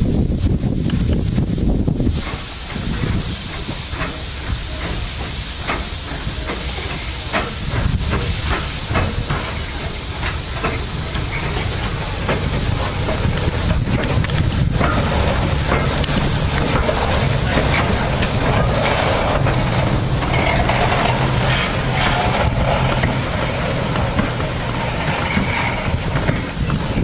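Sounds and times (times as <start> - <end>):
low locomotive rumble: 0.0 - 27.0
steam hissing: 0.0 - 27.0
sharp metal clicks and clanks: 10.2 - 26.5.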